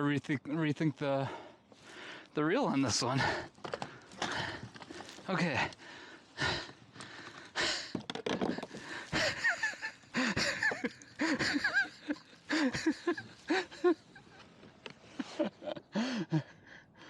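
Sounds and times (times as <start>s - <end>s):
man breathing hard: 1.2s - 2.3s, 3.2s - 8.0s, 8.6s - 9.5s, 10.1s - 13.8s, 15.9s - 17.0s.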